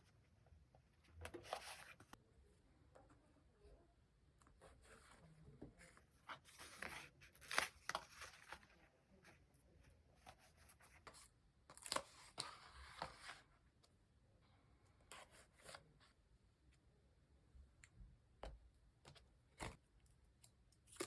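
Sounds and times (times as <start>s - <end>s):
paper and stickers rustling: 1.1s - 2.2s, 4.5s - 9.5s.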